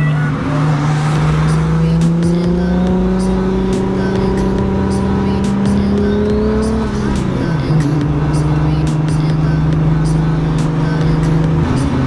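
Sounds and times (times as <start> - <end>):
background music with steady beat: 0.0 - 12.0
car engine pulling under load: 0.0 - 12.0.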